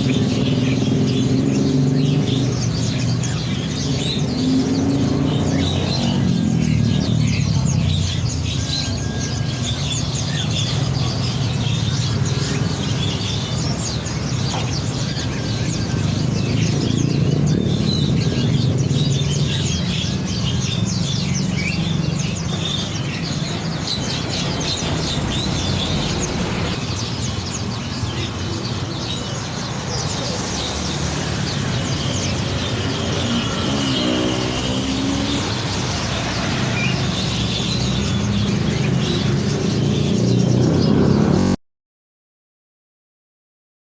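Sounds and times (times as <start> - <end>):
songbirds chirping: 0.0 - 41.6.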